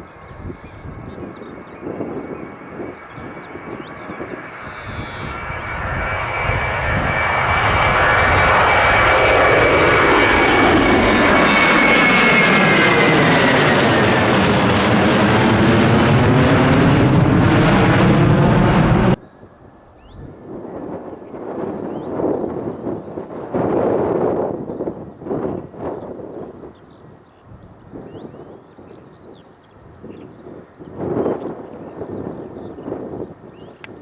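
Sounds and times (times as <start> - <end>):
jet engines passing: 0.0 - 26.8.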